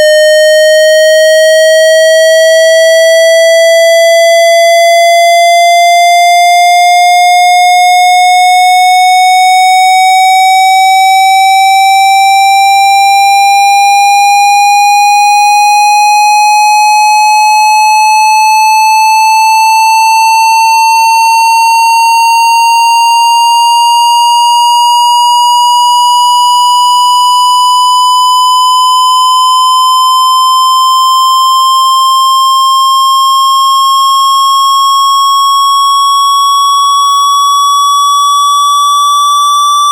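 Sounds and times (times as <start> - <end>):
rising synthesized tone: 26.5 - 31.2.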